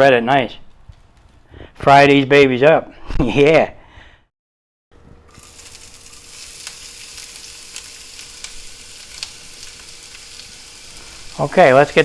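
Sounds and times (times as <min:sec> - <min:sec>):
patties sizzling in hot oil: 0:05.2 - 0:12.0
oil crackling pops: 0:05.3 - 0:12.0.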